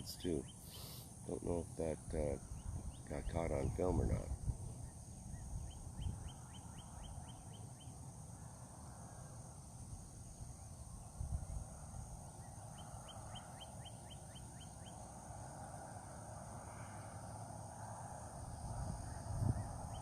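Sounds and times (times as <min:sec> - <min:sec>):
high insect hum: 0:00.0 - 0:20.0
low wind rumble on microphone: 0:01.3 - 0:07.5, 0:09.6 - 0:13.4, 0:16.6 - 0:20.0.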